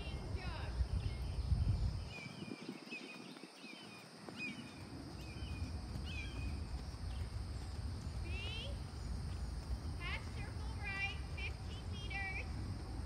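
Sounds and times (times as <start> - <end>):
songbird chirping: 0.0 - 12.6
low background rumble: 4.6 - 13.0.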